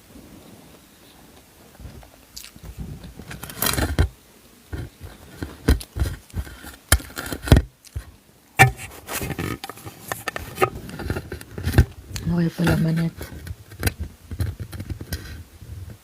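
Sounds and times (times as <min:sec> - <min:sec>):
chewing crunchy toast: 0:02.3 - 0:03.8.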